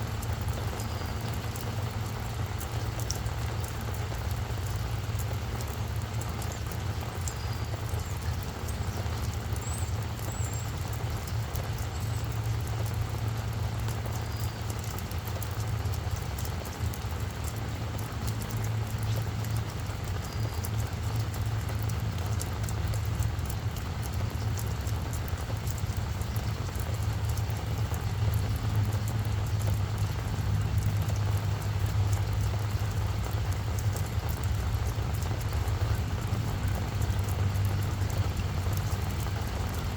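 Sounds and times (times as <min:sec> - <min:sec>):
rain pattering on plants: 0:00.0 - 0:39.9.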